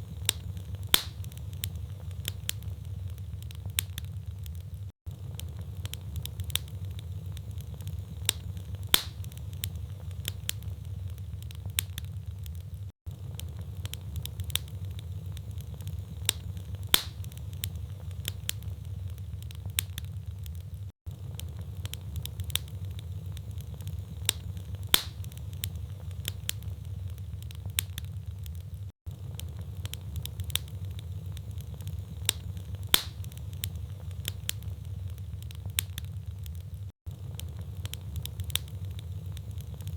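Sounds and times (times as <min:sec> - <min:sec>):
flames rumbling: 0:00.0 - 0:39.9
logs crackling: 0:00.0 - 0:39.9
sharp pop of fire: 0:00.2 - 0:01.4, 0:08.3 - 0:09.4, 0:16.3 - 0:17.4, 0:24.3 - 0:25.4, 0:32.3 - 0:33.4.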